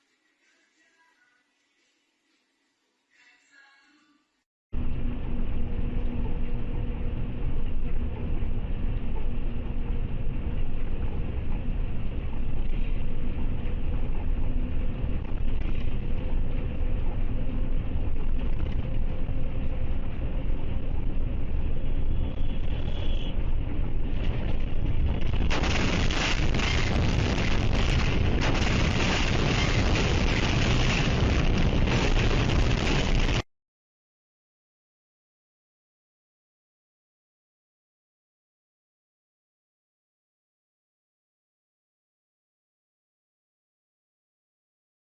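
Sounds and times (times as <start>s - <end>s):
faint engine hum: 4.8s - 32.0s
vehicle driving rumble: 4.8s - 33.4s
harsh rushing noise: 21.6s - 33.5s.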